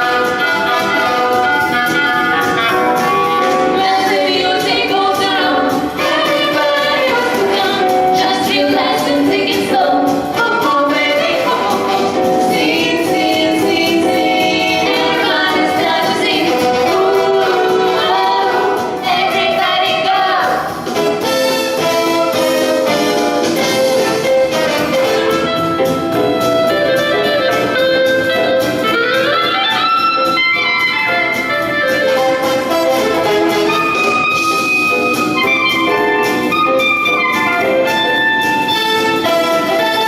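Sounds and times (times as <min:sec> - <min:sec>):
vocal ensemble singing: 0:00.0 - 0:25.4
musical accompaniment: 0:00.0 - 0:40.0.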